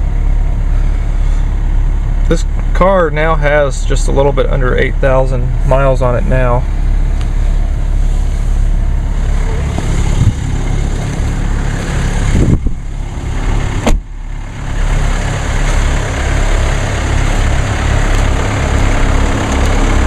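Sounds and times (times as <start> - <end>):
diesel engine idling: 0.0 - 20.0
engine knocks: 8.7 - 20.0
sharp thump: 13.8 - 14.1.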